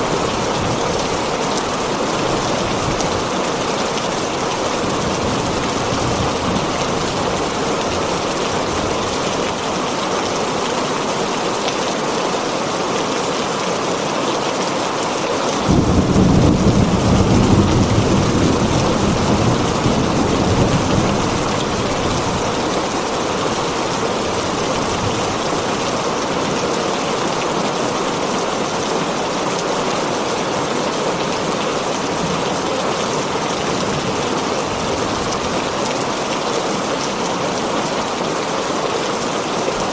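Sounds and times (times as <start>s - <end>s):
heavy rain on a tin roof: 0.0s - 39.9s
thunder rumble: 15.6s - 23.7s.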